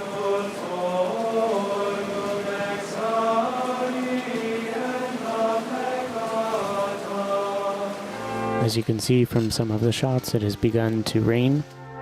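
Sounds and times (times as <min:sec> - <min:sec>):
plainchant sung in unison: 0:00.0 - 0:08.6.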